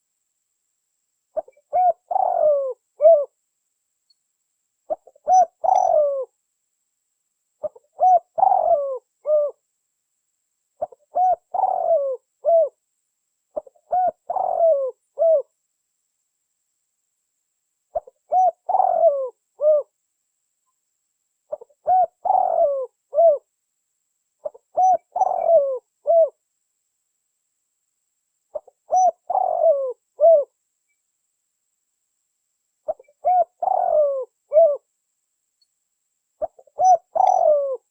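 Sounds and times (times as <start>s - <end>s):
dove cooing: 1.4s - 3.4s, 4.9s - 6.3s, 7.6s - 9.6s, 10.8s - 12.8s, 13.6s - 15.5s, 17.9s - 20.0s, 21.5s - 23.5s, 24.4s - 26.4s, 28.5s - 30.6s, 32.9s - 34.9s, 36.4s - 37.9s.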